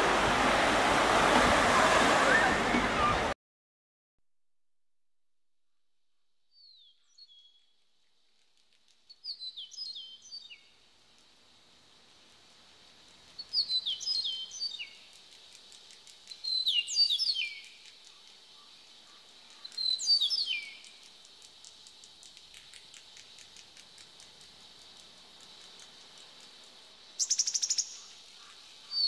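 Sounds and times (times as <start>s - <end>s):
fast faint ticks: 14.8s - 16.6s, 17.5s - 20.0s, 20.6s - 28.6s.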